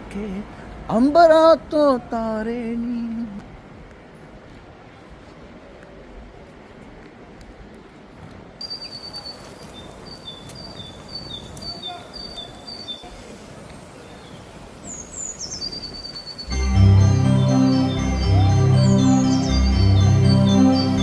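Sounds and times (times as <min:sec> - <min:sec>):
low outdoor background noise: 0:00.0 - 0:21.0
songbird singing: 0:08.6 - 0:21.0.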